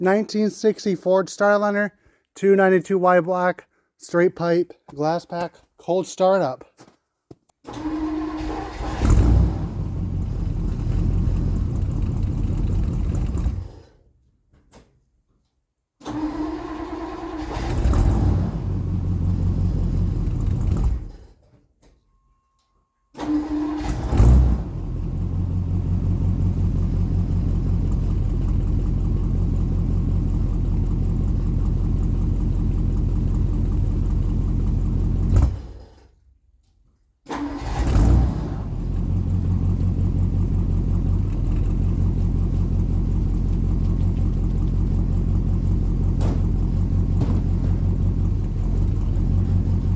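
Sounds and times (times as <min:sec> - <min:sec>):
car engine revving and idling: 0:07.9 - 0:13.9, 0:16.4 - 0:21.2, 0:23.4 - 0:35.8, 0:37.6 - 0:49.9.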